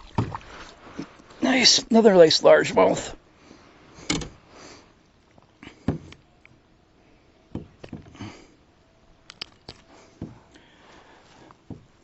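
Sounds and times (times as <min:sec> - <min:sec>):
soft breaths: 0:03.1 - 0:06.2, 0:06.9 - 0:08.8, 0:09.8 - 0:12.0
knocks and clicks handling fish: 0:04.1 - 0:04.4.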